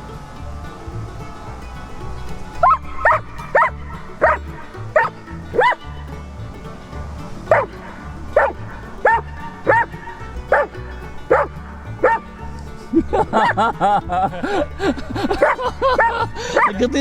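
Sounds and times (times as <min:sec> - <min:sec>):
background music: 0:00.0 - 0:17.0
dog barking: 0:02.6 - 0:04.4, 0:05.0 - 0:05.8, 0:08.4 - 0:09.9, 0:11.3 - 0:12.2, 0:15.4 - 0:16.7.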